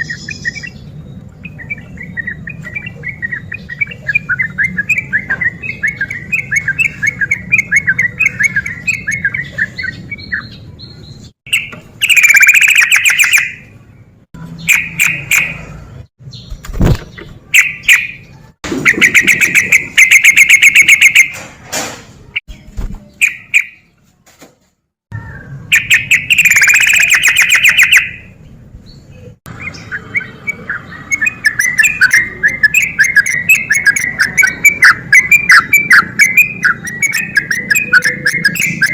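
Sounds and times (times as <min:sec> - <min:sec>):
bird singing fast repeated notes: 0:00.0 - 0:13.8, 0:14.4 - 0:21.4, 0:22.6 - 0:23.9, 0:25.4 - 0:38.9.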